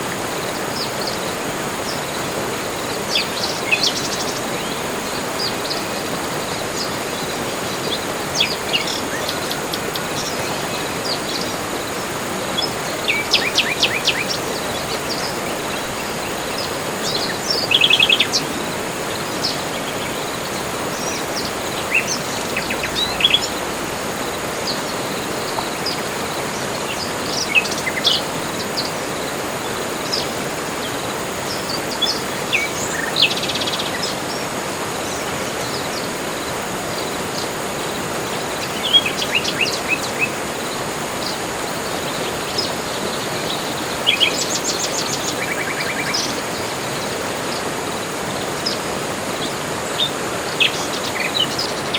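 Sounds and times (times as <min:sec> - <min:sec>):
steady background hiss: 0:00.0 - 0:51.9
birds chirping and trilling: 0:00.5 - 0:37.6.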